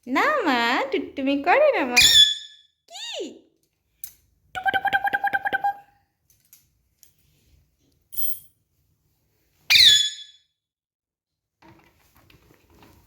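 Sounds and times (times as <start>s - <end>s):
parrot chattering: 2.0s - 2.4s
parrot chirp: 2.0s - 2.6s, 9.7s - 10.5s
parrot squawk: 2.0s - 2.6s, 9.7s - 10.4s.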